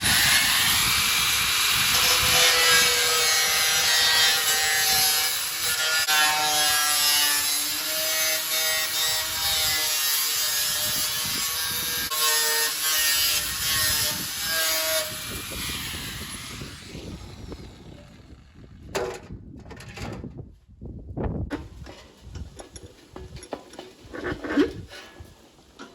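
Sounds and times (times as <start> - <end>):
angle grinder grinding metal: 0.0 - 18.3.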